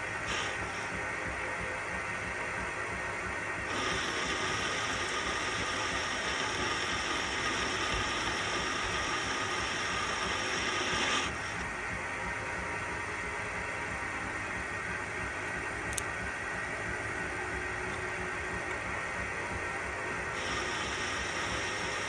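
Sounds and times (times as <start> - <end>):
lathe cutting hiss and whine: 0.0 - 1.0, 3.6 - 11.8, 18.9 - 22.0
metal lathe humming: 3.7 - 11.7, 20.3 - 22.0.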